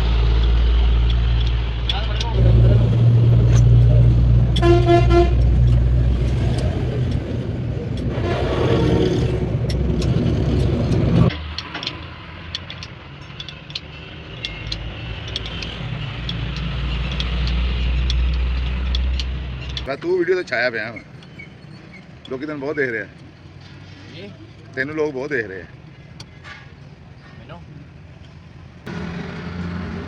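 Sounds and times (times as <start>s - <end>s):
vehicle engine running: 0.0s - 11.6s
horn toot: 2.4s - 6.8s, 8.0s - 10.1s
sharp clicks: 3.3s - 19.9s.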